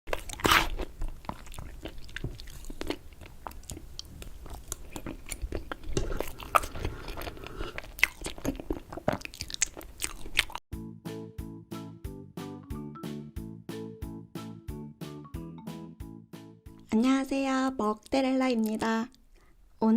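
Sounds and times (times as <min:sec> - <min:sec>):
close-miked chewing: 0:00.1 - 0:10.6
music: 0:10.7 - 0:17.3.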